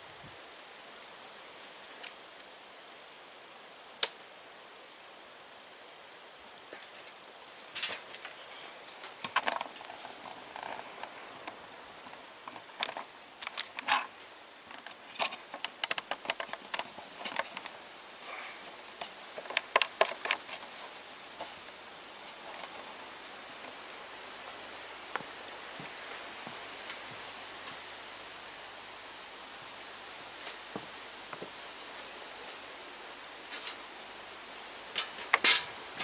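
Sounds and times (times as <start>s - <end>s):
clicks and knocks of small parts: 6.7s - 11.6s, 12.4s - 14.1s, 14.7s - 17.8s, 19.0s - 20.7s, 34.9s - 35.7s.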